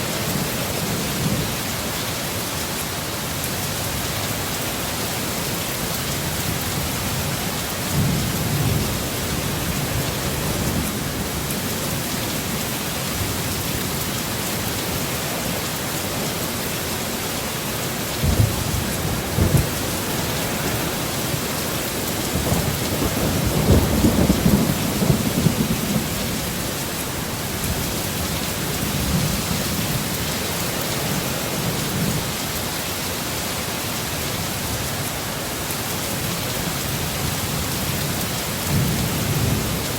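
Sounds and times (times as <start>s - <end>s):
heavy steady rain: 0.0s - 39.9s
thunder rumbling: 18.0s - 26.9s.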